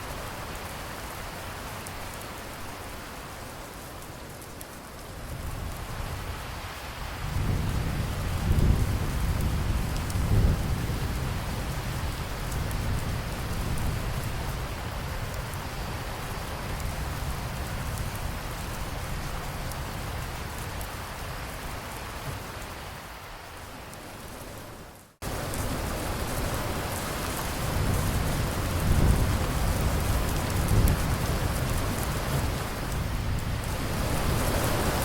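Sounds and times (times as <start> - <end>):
heavy rain falling: 0.0 - 35.0
low rolling thunder: 7.2 - 15.9, 25.2 - 35.0.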